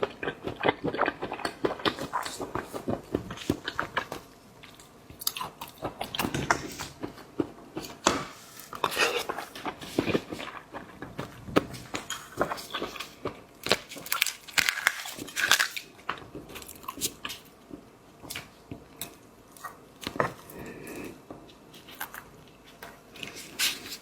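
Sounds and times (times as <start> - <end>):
wet chewing clicks: 0.0 - 8.0
bites and crunches of seafood: 8.9 - 17.5.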